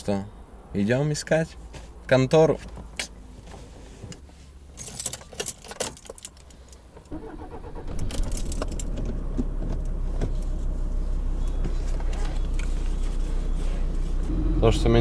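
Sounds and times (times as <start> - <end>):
car keys jangling in ignition: 4.7 - 10.5
car engine starting and idling: 6.4 - 15.0.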